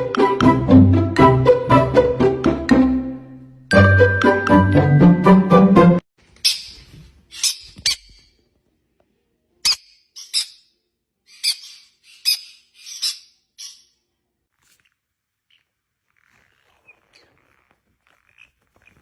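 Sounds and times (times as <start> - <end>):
parrot squeaky calls: 6.4 - 8.3, 9.6 - 10.7, 11.3 - 14.0.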